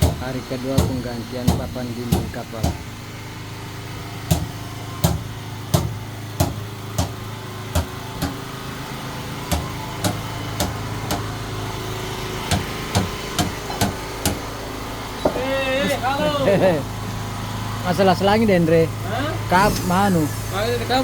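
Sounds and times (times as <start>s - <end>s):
engine hum: 0.0s - 21.0s
hammer on wooden planking: 0.8s - 2.9s, 4.3s - 8.4s, 9.5s - 11.3s, 12.5s - 14.4s.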